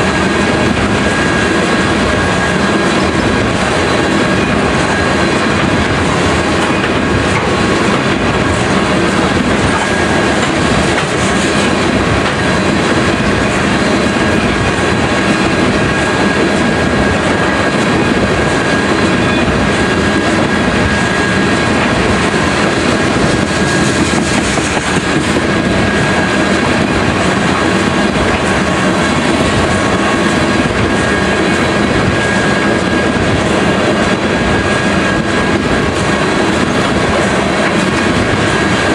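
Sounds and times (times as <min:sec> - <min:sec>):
freight train rolling past: 0:00.0 - 0:38.9.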